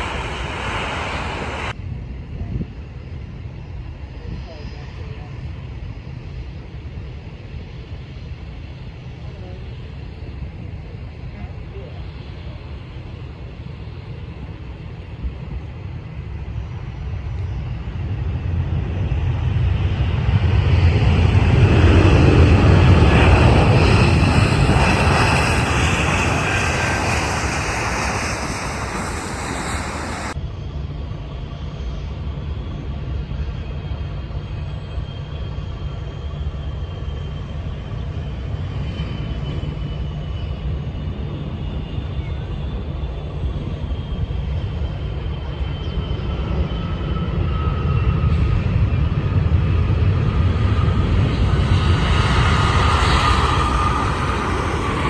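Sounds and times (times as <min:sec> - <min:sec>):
steady low rumble: 0:00.0 - 0:39.8
jet airliner passing: 0:00.0 - 0:55.0.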